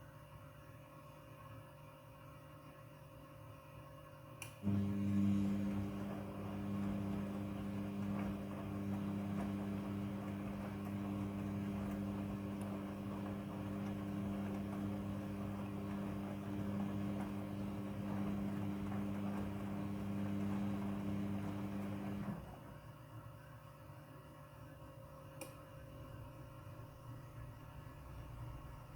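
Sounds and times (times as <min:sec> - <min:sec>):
washing machine humming: 0:04.6 - 0:23.1.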